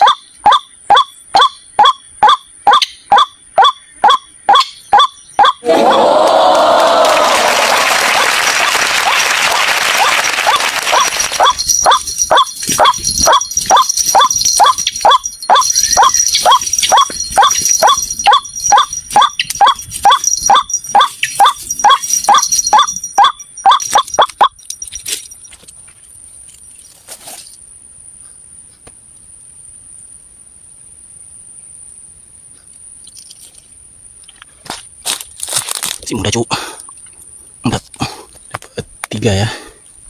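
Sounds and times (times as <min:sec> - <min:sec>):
waterhen calls: 0:00.0 - 0:05.6, 0:10.0 - 0:24.6.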